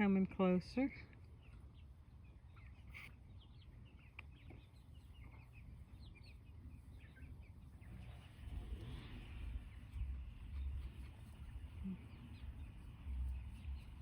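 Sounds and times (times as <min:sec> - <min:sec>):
young chickens peeping: 0:00.0 - 0:14.0
steady low rumble: 0:05.0 - 0:14.0.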